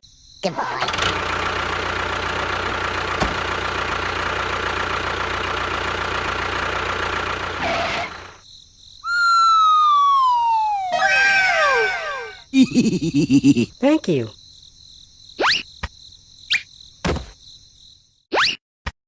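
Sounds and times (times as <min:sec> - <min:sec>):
descending whistle tones: 0:09.0 - 0:12.5.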